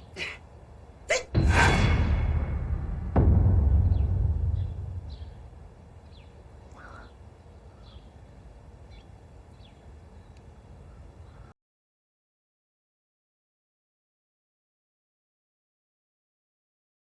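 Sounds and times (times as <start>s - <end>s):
low rumble: 1.4s - 6.6s
faint bird chirps: 3.9s - 8.2s.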